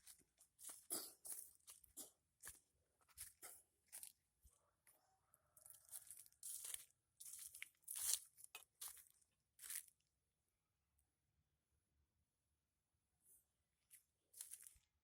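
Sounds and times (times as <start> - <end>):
faint crunching and rustling: 0.0 - 5.0, 5.6 - 10.1, 13.4 - 15.0.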